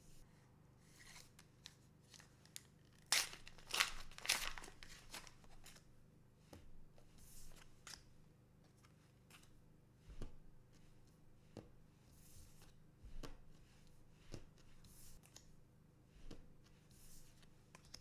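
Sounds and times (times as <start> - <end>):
foil wrapper tearing and crinkling: 2.2 - 5.5.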